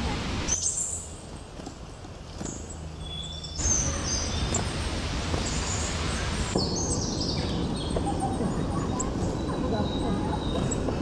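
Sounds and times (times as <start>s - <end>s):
birds chirping: 0.0s - 11.0s
outdoor background noise: 0.0s - 11.0s
rush of noise: 3.6s - 11.0s.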